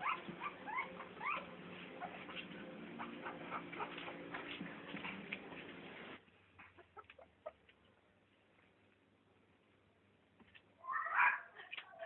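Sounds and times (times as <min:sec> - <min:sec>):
young animals squeaking: 0:00.0 - 0:04.4
steady low hum: 0:00.0 - 0:06.6.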